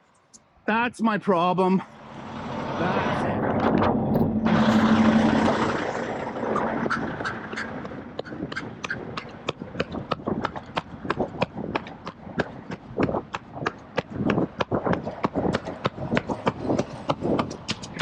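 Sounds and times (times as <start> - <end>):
low steady hum: 1.8 - 8.2
loud rushing noise: 1.8 - 11.7
running footsteps: 6.5 - 18.0.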